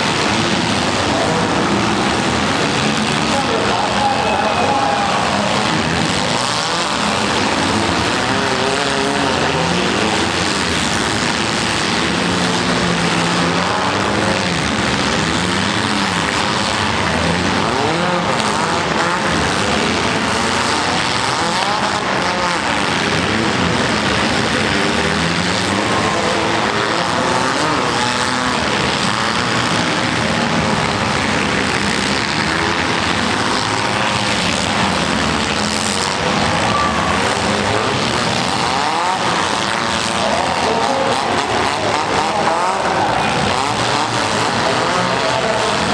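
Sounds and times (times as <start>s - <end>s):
car engines revving: 0.0s - 45.9s.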